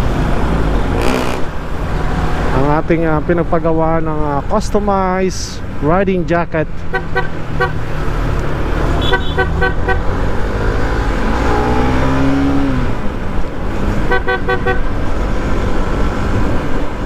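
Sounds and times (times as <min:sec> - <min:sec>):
road traffic rumble: 0:00.0 - 0:17.0
vehicle passing: 0:07.2 - 0:13.1
quick horn beeps: 0:09.0 - 0:10.0.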